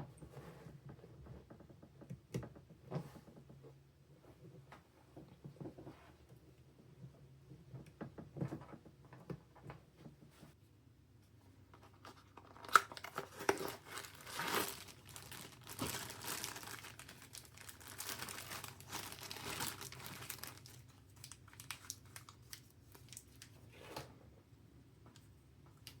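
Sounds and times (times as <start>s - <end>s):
plastic packaging crinkling: 12.4s - 23.6s.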